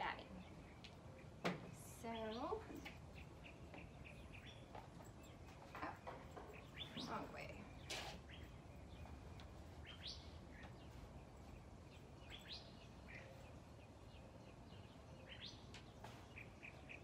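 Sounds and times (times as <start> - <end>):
bird chirps: 0.2 - 17.0.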